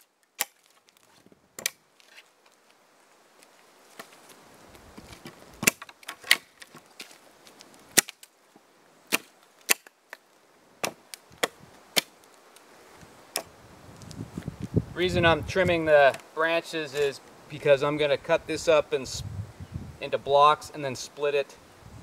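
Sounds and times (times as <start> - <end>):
axe chopping wood: 1.6 - 1.8, 5.6 - 6.6, 8.0 - 8.3, 9.1 - 9.9, 10.8 - 12.2.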